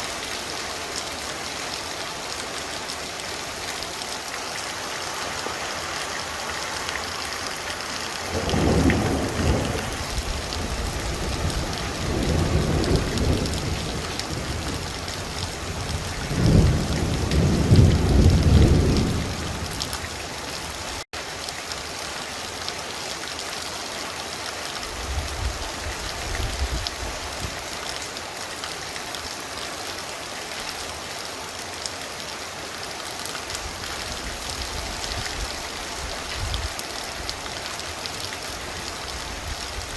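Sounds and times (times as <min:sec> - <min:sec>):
heavy rain pouring: 0:00.0 - 0:39.9
thunder rumbling: 0:08.2 - 0:19.9.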